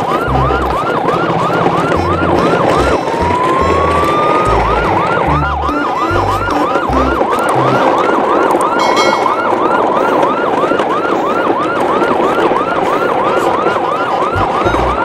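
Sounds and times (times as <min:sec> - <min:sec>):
siren yelping and wailing: 0:00.0 - 0:15.0
low stepped bass notes: 0:00.2 - 0:00.8, 0:01.9 - 0:08.0, 0:14.4 - 0:15.0.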